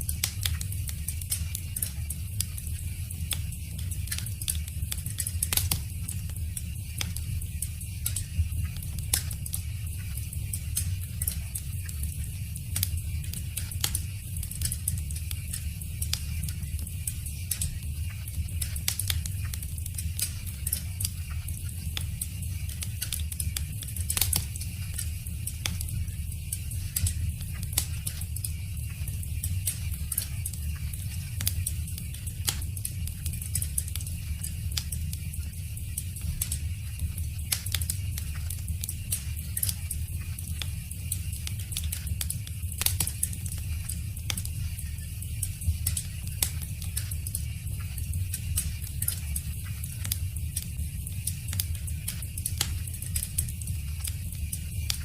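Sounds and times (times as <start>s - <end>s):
low rumble of flames: 0.0s - 55.0s
burning wood popping: 3.2s - 7.2s, 12.7s - 35.3s, 37.3s - 55.0s.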